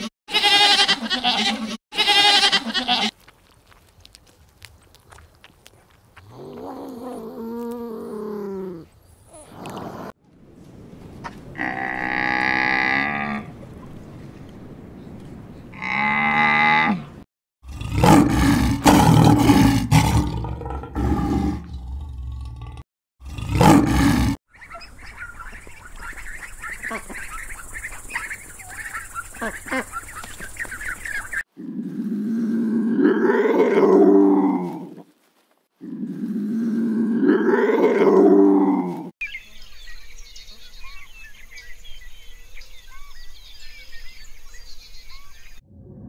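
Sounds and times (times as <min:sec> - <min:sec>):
lion growling and roaring: 0:06.3 - 0:10.2, 0:17.6 - 0:24.4, 0:31.6 - 0:35.0, 0:35.8 - 0:39.1
ducklings peeping: 0:24.5 - 0:31.4.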